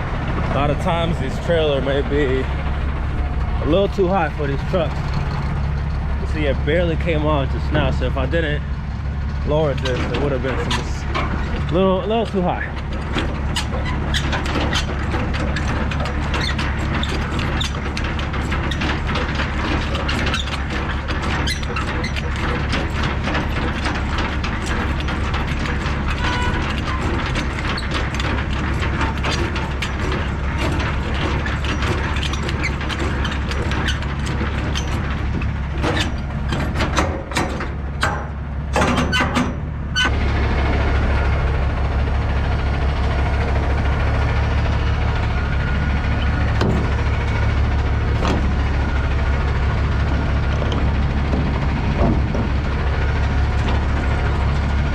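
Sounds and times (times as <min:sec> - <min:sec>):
truck engine idling: 0:00.0 - 0:54.9
crank knocks: 0:00.2 - 0:40.1, 0:45.2 - 0:54.9
crank clicking and ratcheting: 0:09.5 - 0:40.1.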